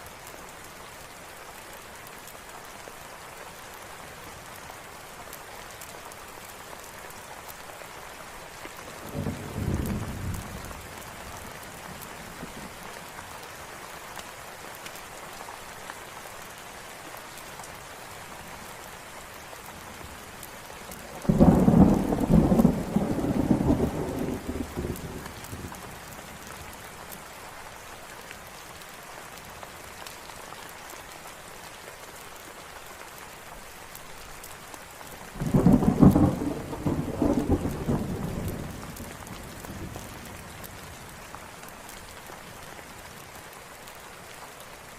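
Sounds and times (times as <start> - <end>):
steady rain falling: 0.0 - 44.9
low rolls of thunder: 9.0 - 11.0, 21.1 - 25.9, 35.4 - 40.4.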